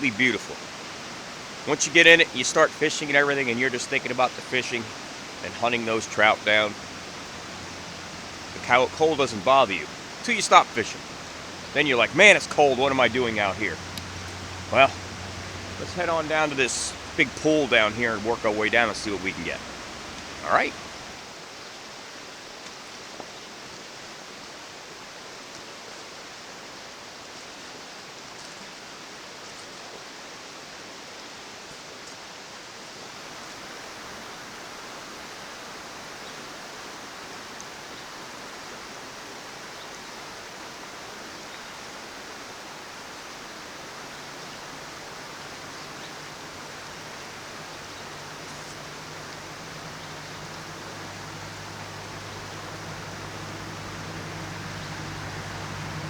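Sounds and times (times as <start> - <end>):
low steady hum: 0.0 - 21.2, 43.6 - 56.0
rushing river: 0.0 - 56.0.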